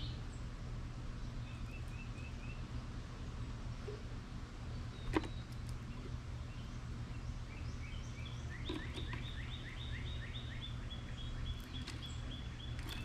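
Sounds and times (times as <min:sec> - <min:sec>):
songbird singing rising notes: 0:04.7 - 0:13.0.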